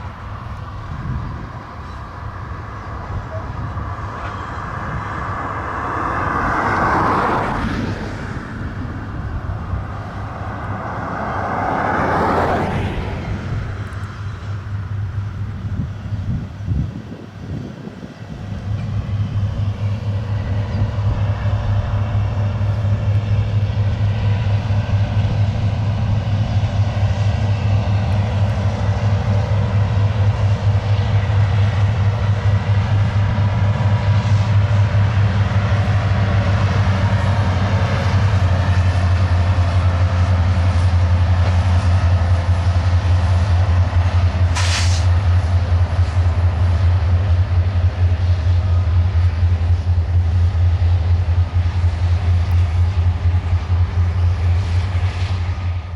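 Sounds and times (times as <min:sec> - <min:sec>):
diesel locomotive drone: 0:00.0 - 0:55.9
train rumble: 0:00.0 - 0:55.9
brief hiss: 0:44.5 - 0:45.2.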